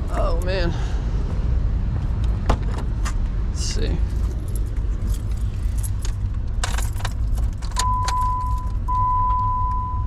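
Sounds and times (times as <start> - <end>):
keys jangling in ignition: 4.0 - 9.5.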